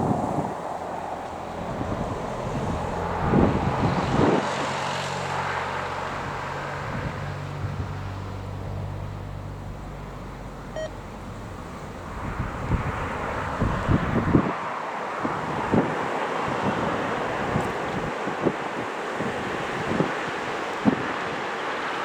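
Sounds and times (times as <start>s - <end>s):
wind buffeting microphone: 0.0s - 9.0s, 11.2s - 22.0s
short beep: 10.7s - 11.0s.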